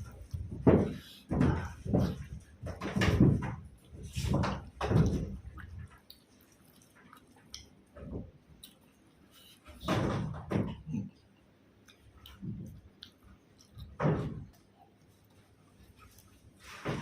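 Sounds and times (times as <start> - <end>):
person chewing food: 0.0 - 2.9, 3.6 - 9.9, 10.8 - 16.8
dull thuds: 0.0 - 5.6.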